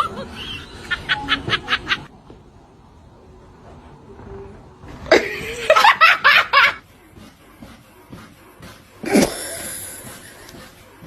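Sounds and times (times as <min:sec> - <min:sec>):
person laughing: 0:00.0 - 0:02.1, 0:05.1 - 0:06.8.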